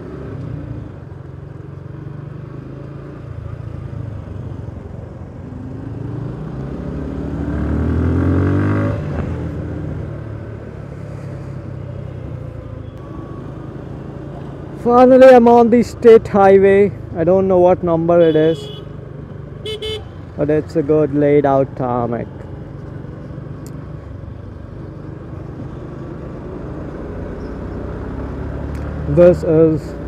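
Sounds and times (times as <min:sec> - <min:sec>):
motorcycle engine revving: 0:00.0 - 0:15.0, 0:22.6 - 0:30.0.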